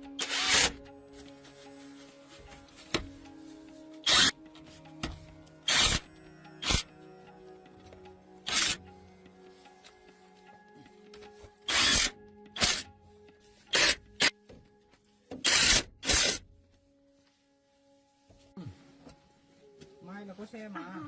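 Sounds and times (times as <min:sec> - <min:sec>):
background music: 0:00.0 - 0:21.0
power tool bursts: 0:05.7 - 0:06.0.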